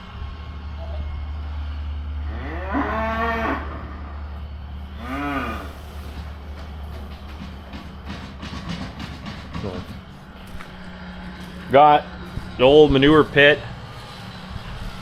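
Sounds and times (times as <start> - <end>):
engine humming: 0.0 - 15.0
cattle mooing: 2.2 - 6.2.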